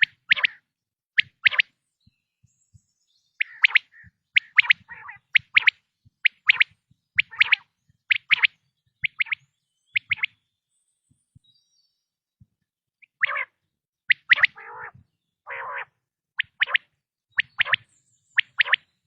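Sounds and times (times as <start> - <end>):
quail calling: 0.0 - 1.7, 3.4 - 9.4, 10.0 - 10.4, 13.0 - 18.9.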